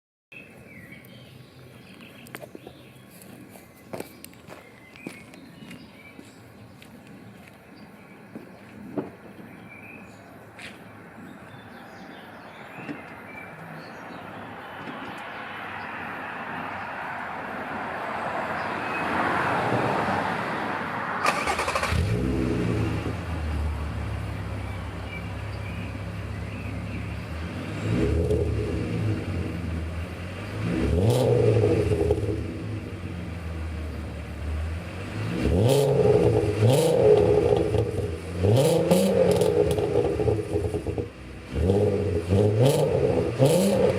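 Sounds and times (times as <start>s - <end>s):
car engine starting and revving: 17.8s - 43.9s.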